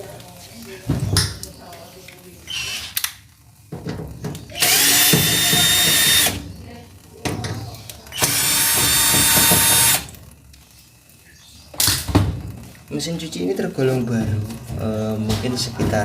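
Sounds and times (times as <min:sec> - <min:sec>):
electric drill-driver whining: 0:04.5 - 0:06.4, 0:08.1 - 0:10.2.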